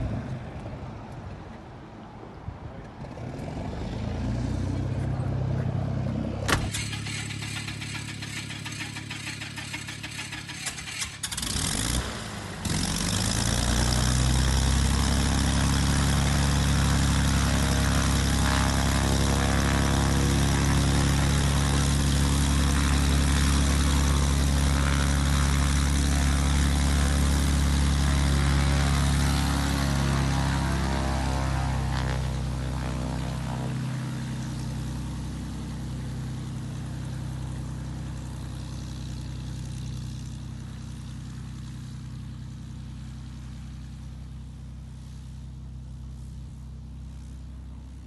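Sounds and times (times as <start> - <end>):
helicopter engine and rotor: 14.4 - 37.6.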